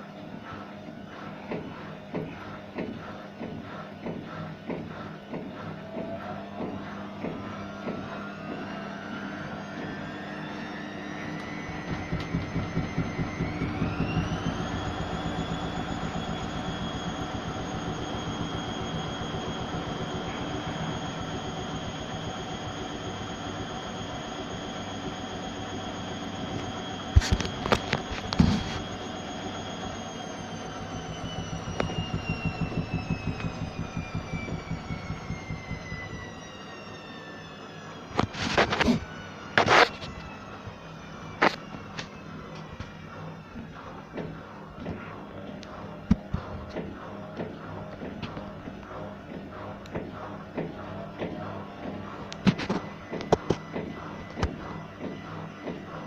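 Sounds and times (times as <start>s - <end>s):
washing machine motor whine: 0.0s - 56.0s
rhythmic knocking from drum: 11.7s - 15.8s, 30.7s - 36.2s.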